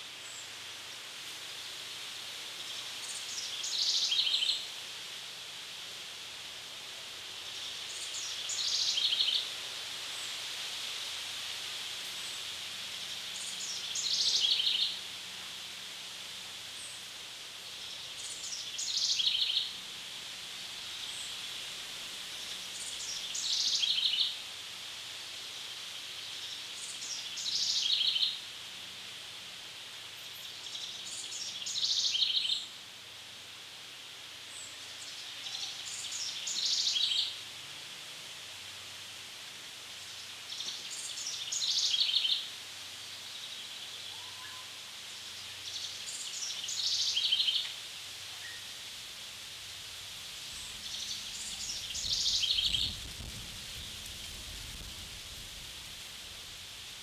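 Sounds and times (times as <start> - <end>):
steady high hiss: 0.0 - 57.0
songbird singing with trill: 3.0 - 4.6, 13.4 - 15.0, 17.8 - 19.8, 22.7 - 24.3, 26.8 - 28.4, 30.3 - 32.7, 34.6 - 37.4, 40.5 - 42.5, 43.2 - 48.7, 50.5 - 53.0.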